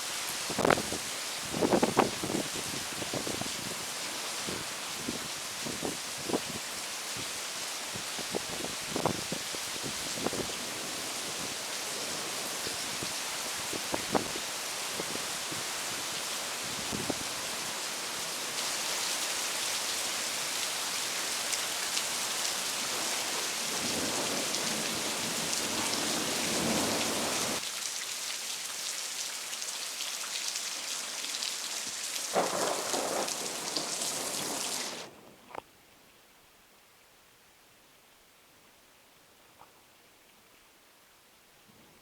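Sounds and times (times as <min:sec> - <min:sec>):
heavy rain pouring: 0:00.0 - 0:28.5, 0:30.8 - 0:35.4
thunder rumbling: 0:23.7 - 0:27.6, 0:32.4 - 0:35.5.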